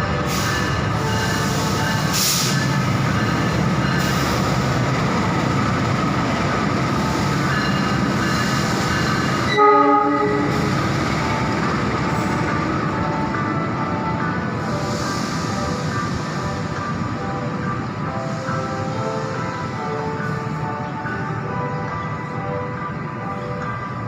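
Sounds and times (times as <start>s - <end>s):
train rumble: 0.0s - 24.0s
train horn blast: 9.5s - 10.7s.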